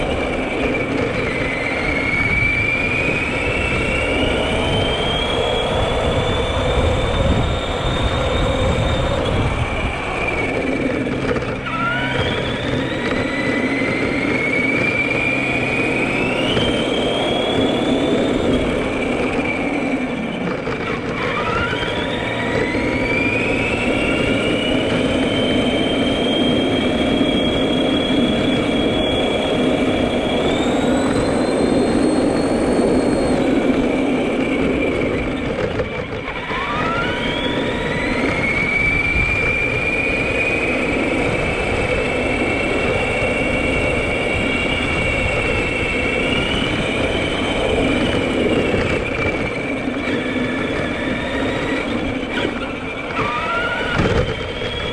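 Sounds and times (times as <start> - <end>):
electric motor whining: 0.0 - 54.9
steady rumbling of truck: 0.0 - 54.9.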